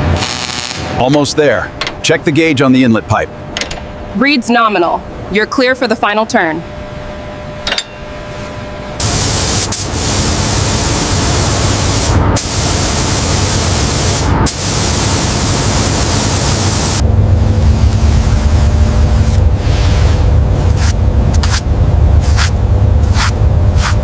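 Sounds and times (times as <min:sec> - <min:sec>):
high-pressure spray jet hissing: 0:09.0 - 0:17.0.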